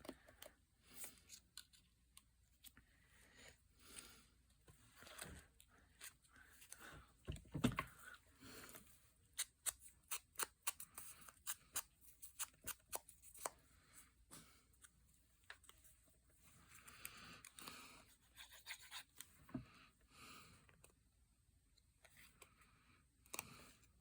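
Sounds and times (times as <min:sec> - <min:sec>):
scissors snipping paper: 0:09.4 - 0:13.6.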